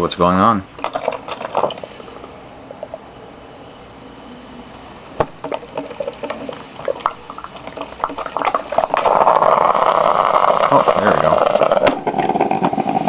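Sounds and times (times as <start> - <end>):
hiss of steam and boiling water: 0.0 - 13.0
coffee maker gurgling: 0.7 - 3.1, 5.2 - 13.0.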